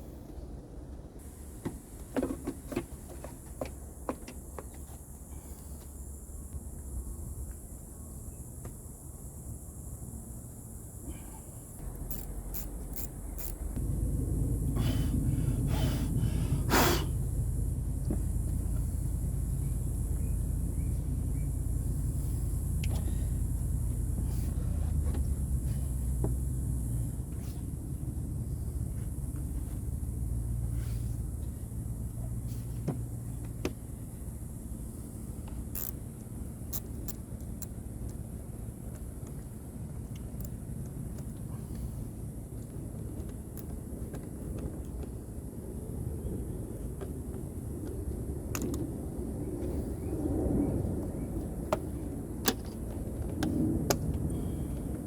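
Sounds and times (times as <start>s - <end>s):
steady hum: 0.0s - 38.8s
car engine starting and idling: 11.8s - 33.5s
short hissing bursts: 14.6s - 17.5s.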